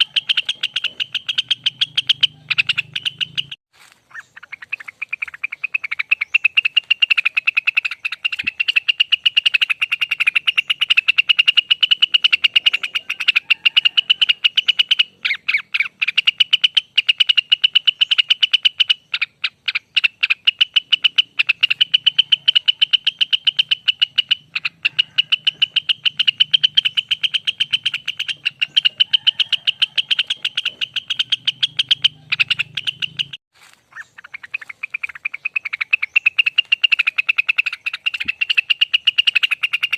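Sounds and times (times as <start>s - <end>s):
bird singing rapid chattering notes: 0.0s - 39.9s.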